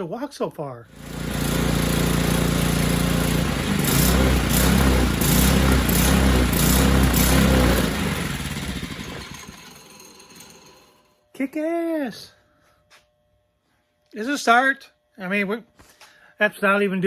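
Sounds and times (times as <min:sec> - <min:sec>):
small engine revving: 0:00.9 - 0:11.1.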